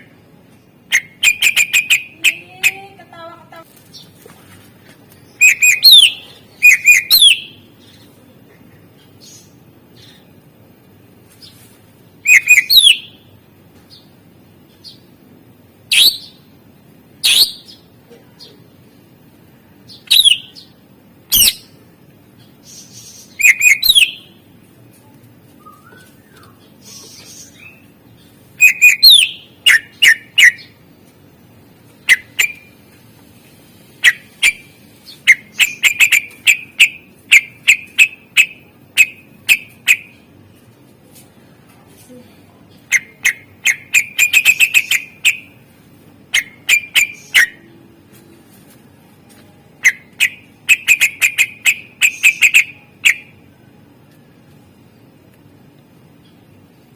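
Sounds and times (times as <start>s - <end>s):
bird singing whistled notes: 5.3s - 7.6s, 12.2s - 13.2s, 15.9s - 16.4s, 17.2s - 17.8s, 19.9s - 20.6s, 23.1s - 24.3s, 25.6s - 27.8s, 28.6s - 30.8s.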